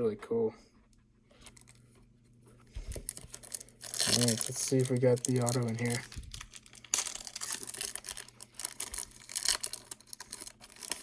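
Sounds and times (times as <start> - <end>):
wrapper tearing and crinkling: 2.8 - 11.0.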